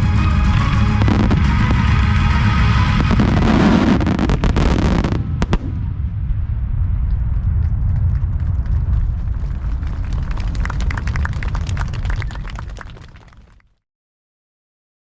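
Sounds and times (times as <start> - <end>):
fireworks crackling and banging: 0.0 - 13.6
low rumble: 0.0 - 13.6
scattered firework pops: 2.9 - 5.9, 6.8 - 13.5.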